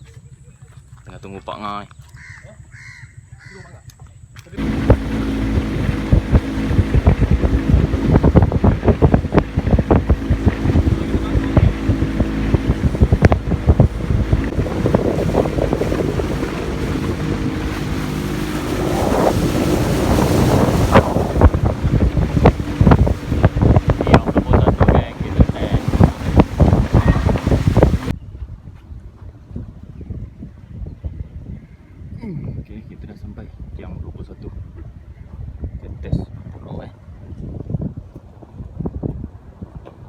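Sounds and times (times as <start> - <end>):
outboard motor droning: 0.0 - 28.2
wind buffeting microphone: 4.5 - 40.0.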